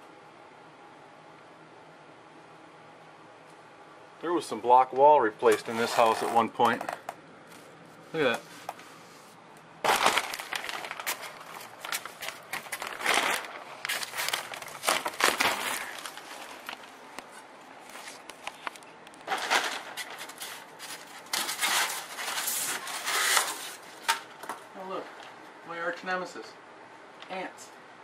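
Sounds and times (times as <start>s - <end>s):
wall materials crinkling and snapping: 4.9s - 7.7s, 9.5s - 24.6s.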